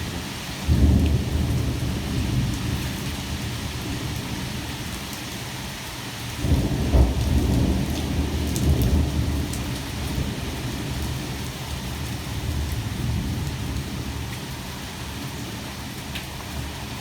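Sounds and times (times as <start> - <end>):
heavy rain: 0.0 - 17.0
thunder rumbling: 6.4 - 11.4.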